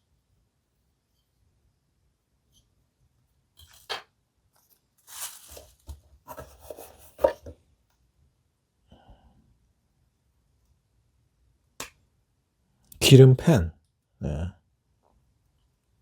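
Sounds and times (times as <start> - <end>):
packaging rustling and scraping: 4.6 - 7.6.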